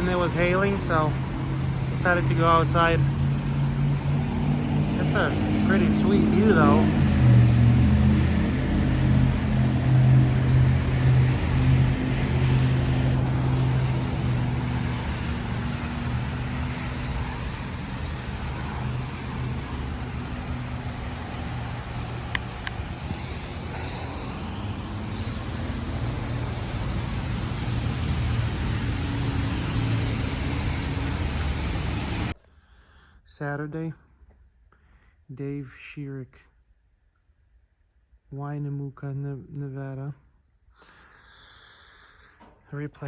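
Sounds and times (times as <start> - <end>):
vehicle engine humming: 0.0 - 32.4
road traffic noise: 0.0 - 32.9, 40.8 - 43.0.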